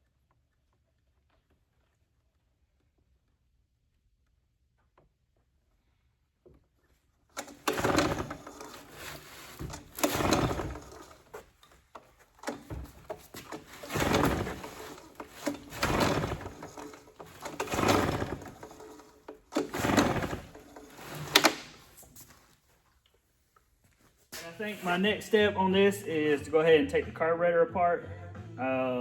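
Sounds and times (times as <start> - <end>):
recoil starter cord pulls: 7.4 - 22.1.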